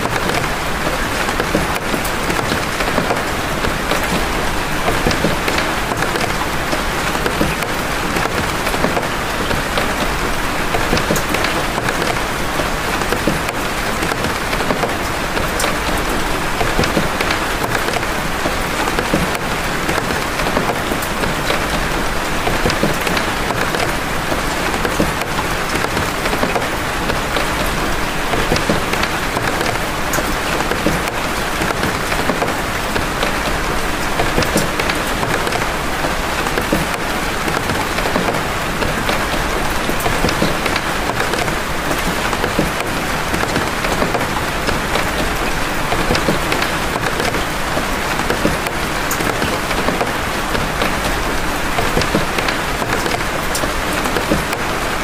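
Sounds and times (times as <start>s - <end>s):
big raindrops hitting: 0.0s - 55.0s
heavy rain: 0.0s - 55.0s.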